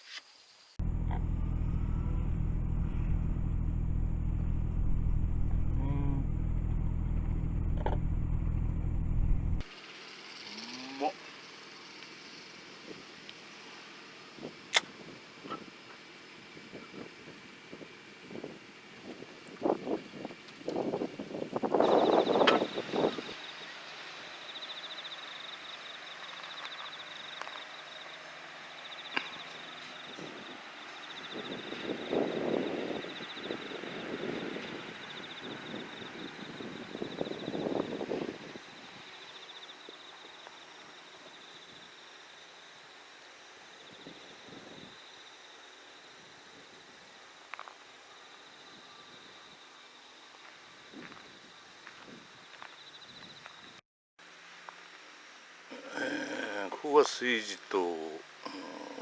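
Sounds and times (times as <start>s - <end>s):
faint outdoor hiss: 0.0s - 2.8s, 9.6s - 59.0s
car engine droning: 0.8s - 9.7s
insect trilling: 9.7s - 14.1s, 55.7s - 59.0s.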